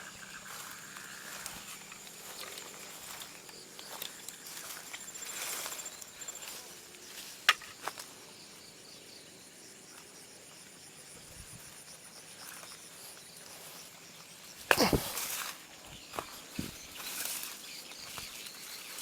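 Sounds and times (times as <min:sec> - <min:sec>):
night insects trilling: 0:00.0 - 0:19.0.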